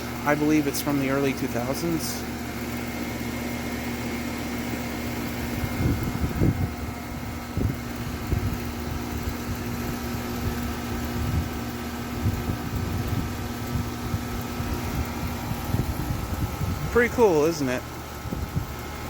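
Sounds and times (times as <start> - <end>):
air conditioner compressor hum: 0.0 - 19.0
condenser fan whoosh: 0.0 - 19.0
low rumbles on microphone: 5.4 - 11.6, 12.2 - 17.2.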